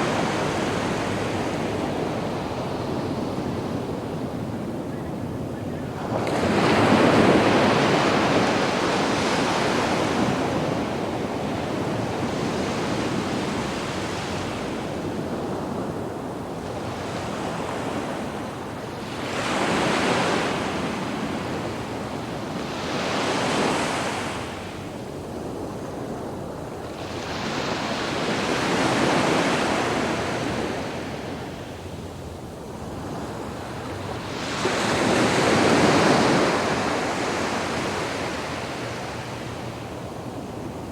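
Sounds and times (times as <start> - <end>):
sea waves breaking on beach: 32.8 - 40.9.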